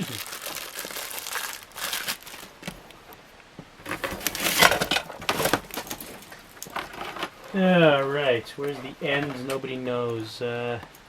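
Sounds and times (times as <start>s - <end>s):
packing materials crinkling: 0.0s - 3.1s, 3.8s - 7.5s.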